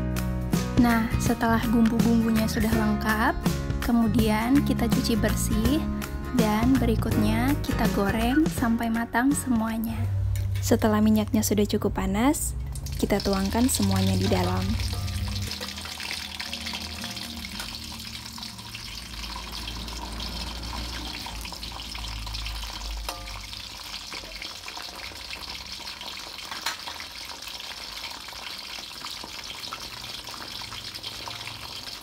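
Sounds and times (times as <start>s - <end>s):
vegetables sizzling in hot oil: 12.6s - 32.0s.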